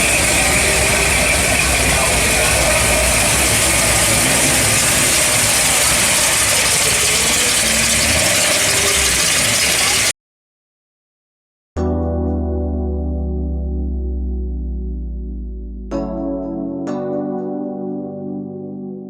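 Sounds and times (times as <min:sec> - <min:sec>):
car engine idling: 0:00.0 - 0:10.1
outdoor noise: 0:00.0 - 0:10.1.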